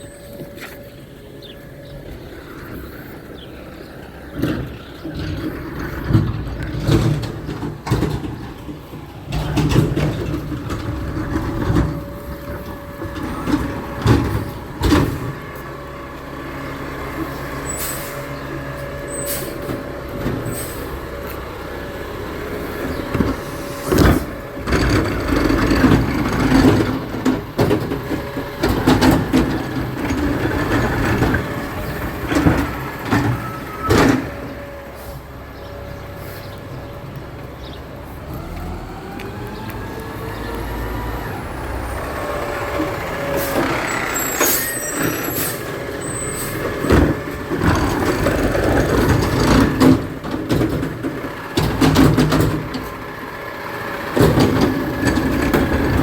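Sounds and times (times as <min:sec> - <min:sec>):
garbage truck engine humming: 0:00.0 - 0:56.0
clanks and bangs: 0:04.4 - 0:15.4, 0:22.9 - 0:34.6, 0:42.7 - 0:53.0, 0:54.2 - 0:56.0.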